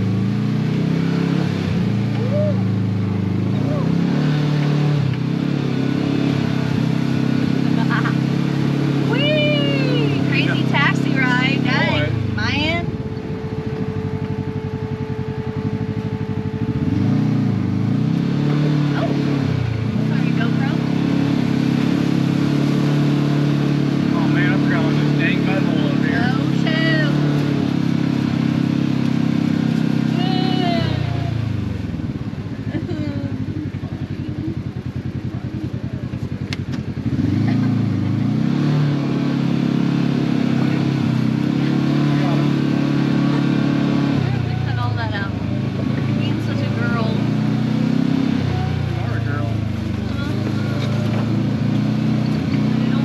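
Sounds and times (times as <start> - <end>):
off-road vehicle engine revving: 0.0 - 53.0.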